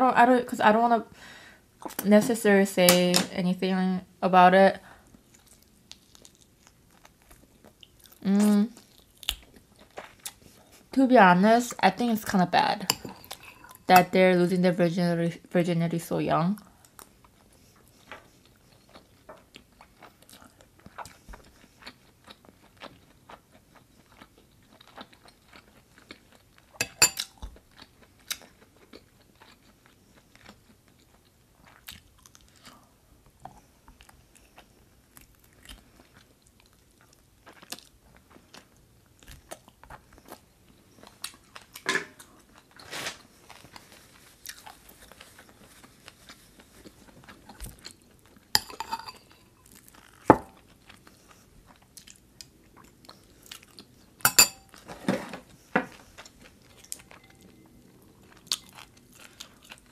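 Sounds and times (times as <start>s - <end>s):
chewing food: 16.8s - 48.5s, 49.1s - 54.2s, 55.5s - 59.9s.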